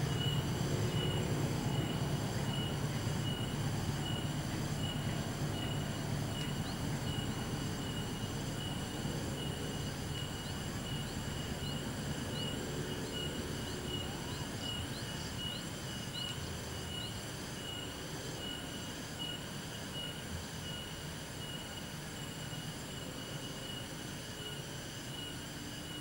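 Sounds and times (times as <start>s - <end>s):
train rumbling on track: 0.0s - 20.5s
pulsing insect trill: 0.0s - 26.0s.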